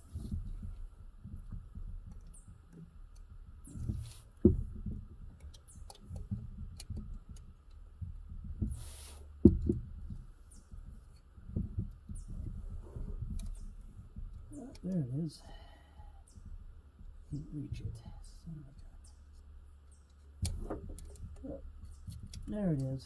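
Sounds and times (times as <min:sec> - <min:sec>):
short hiss: 0:08.8 - 0:09.3.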